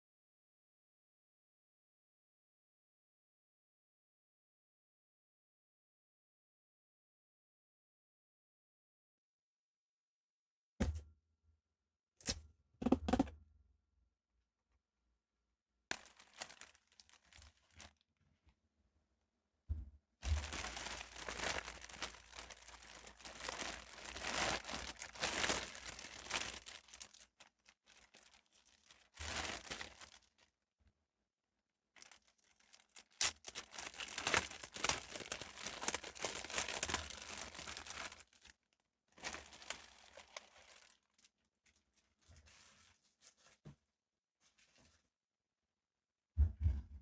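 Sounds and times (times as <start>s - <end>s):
packaging crinkling and tearing: 15.9s - 18.0s, 20.2s - 30.5s, 32.0s - 38.6s, 39.2s - 41.4s.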